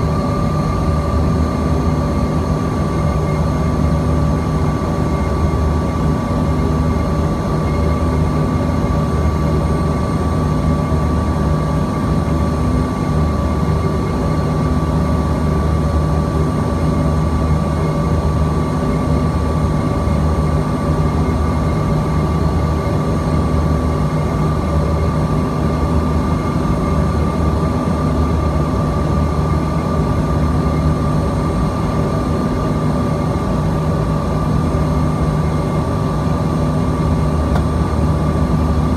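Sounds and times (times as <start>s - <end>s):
jet engine drone in cabin: 0.0s - 38.9s.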